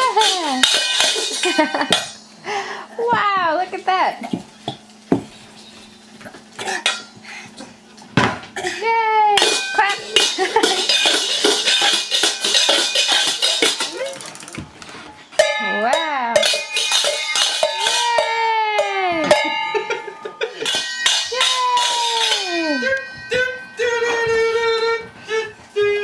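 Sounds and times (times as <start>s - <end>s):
metal kitchen utensils clattering: 0.0s - 2.3s, 5.3s - 7.2s, 8.6s - 14.6s, 15.4s - 23.3s.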